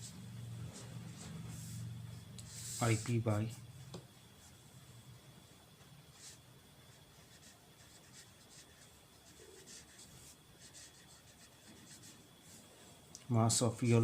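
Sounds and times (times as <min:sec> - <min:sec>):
faint high-pitched whine: 0:00.0 - 0:14.0
pen scratching on paper: 0:07.1 - 0:12.2.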